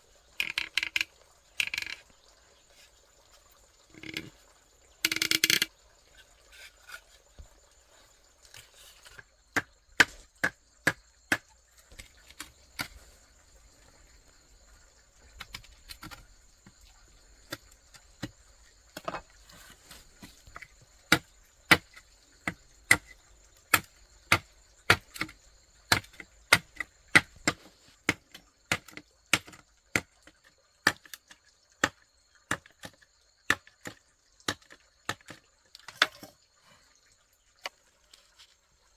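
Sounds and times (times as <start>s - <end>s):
high-pitched insect calls: 0.0s - 8.2s
blade chopping wood: 9.1s - 13.0s, 19.8s - 30.2s, 30.8s - 31.2s.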